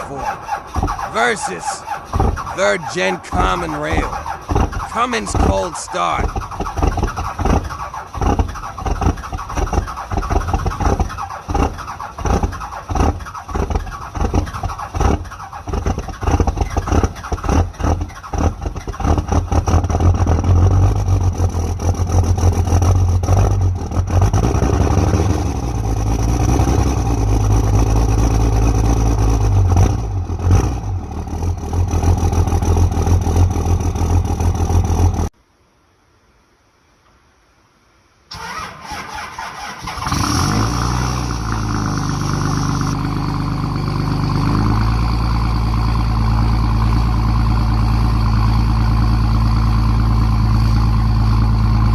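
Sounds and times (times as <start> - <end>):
starter motor cranking: 0.0 - 20.7
diesel engine rumbling: 0.0 - 35.4, 38.3 - 51.9.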